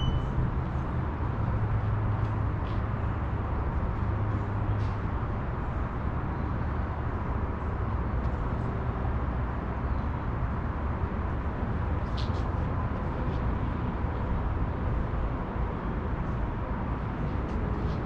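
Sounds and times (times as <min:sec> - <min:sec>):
faint steady tone: 0:00.0 - 0:00.4.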